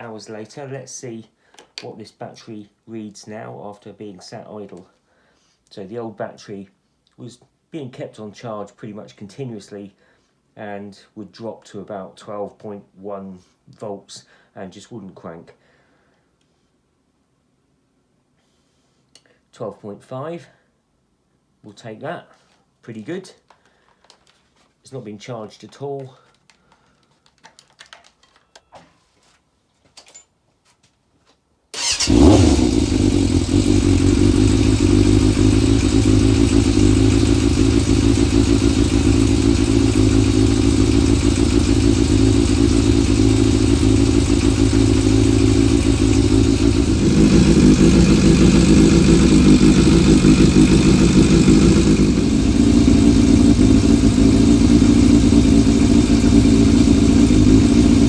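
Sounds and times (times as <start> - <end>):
motorcycle engine running: 31.8 - 58.0.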